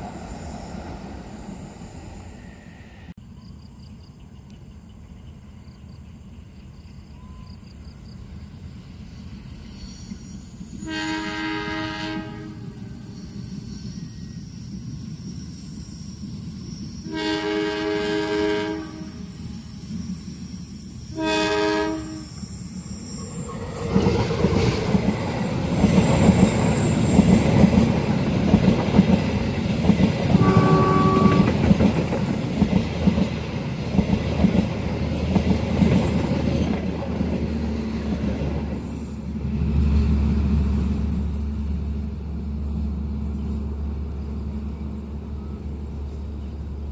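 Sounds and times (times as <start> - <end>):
train rumble: 0.0 - 3.4, 6.5 - 46.9
train horn: 10.8 - 12.8, 17.0 - 19.4, 21.1 - 22.4, 30.3 - 31.8.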